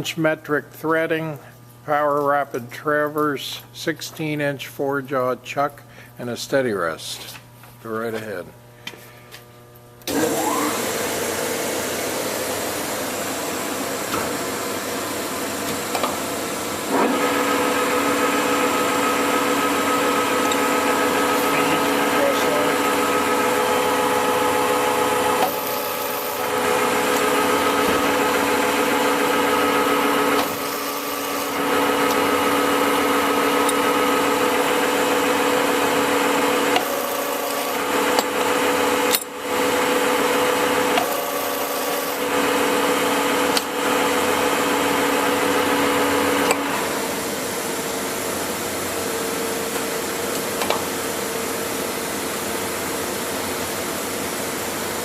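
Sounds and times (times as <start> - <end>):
lathe gear whine: 16.5 - 46.8.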